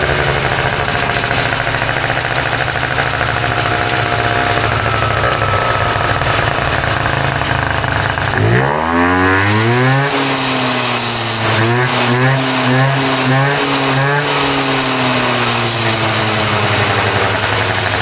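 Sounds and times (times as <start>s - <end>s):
scooter engine idling and revving: 0.0s - 18.0s.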